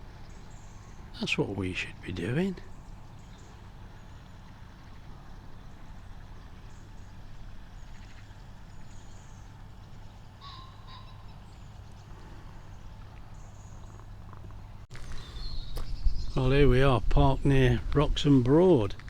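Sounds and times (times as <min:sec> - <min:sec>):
faint bird chirps: 0:00.0 - 0:17.5
wind rumble on microphone: 0:15.0 - 0:19.0.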